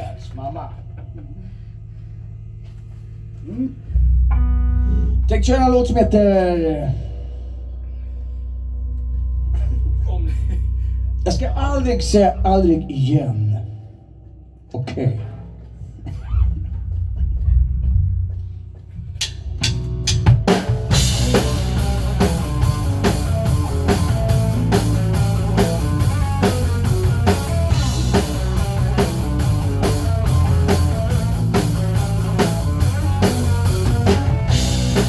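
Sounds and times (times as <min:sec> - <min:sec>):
drum hits: 0:19.1 - 0:35.0
live rock band playing: 0:19.6 - 0:35.0.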